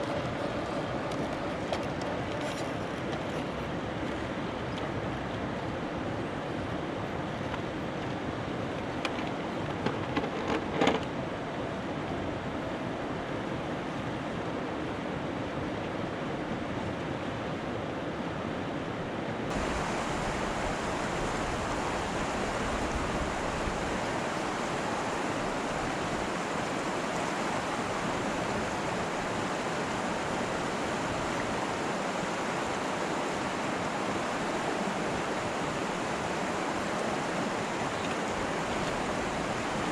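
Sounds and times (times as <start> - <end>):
steady rushing noise: 19.4 - 39.9.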